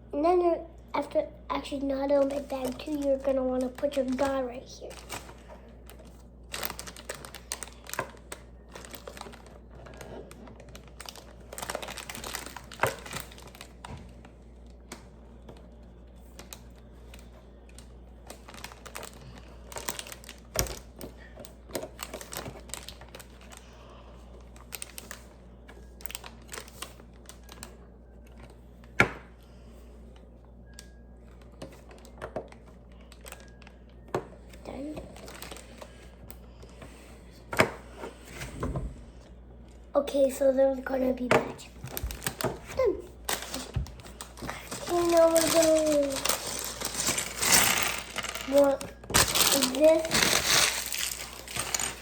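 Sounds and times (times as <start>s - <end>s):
crinkling: 2.0s - 23.7s, 24.3s - 28.9s, 30.8s - 33.8s, 34.6s - 36.7s, 41.7s - 52.0s
plastic pieces clicking and clattering: 43.3s - 52.0s.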